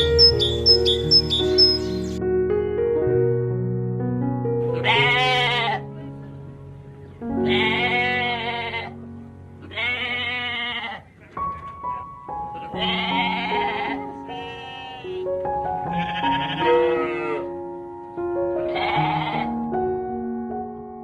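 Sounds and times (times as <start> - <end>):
calm background music: 0.0 - 21.0
animal bleating: 4.6 - 6.1, 7.4 - 9.0, 9.6 - 15.3, 15.9 - 17.6, 18.6 - 19.6.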